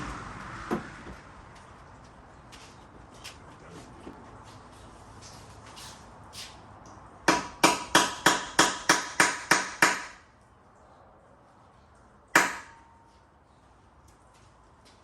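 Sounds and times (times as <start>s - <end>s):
hammer striking metal: 12.4s - 12.9s.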